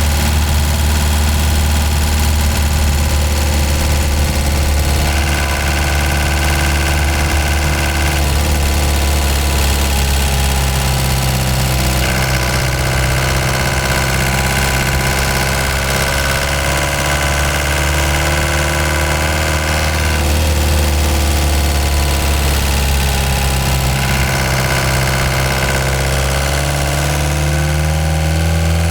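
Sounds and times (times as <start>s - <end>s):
van engine running: 0.0s - 28.9s.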